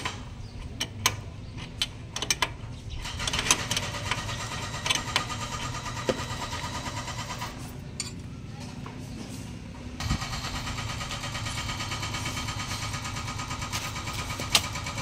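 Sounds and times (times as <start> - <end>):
clicks and knocks of metal parts: 0.0 - 8.3
low engine hum: 0.1 - 15.0.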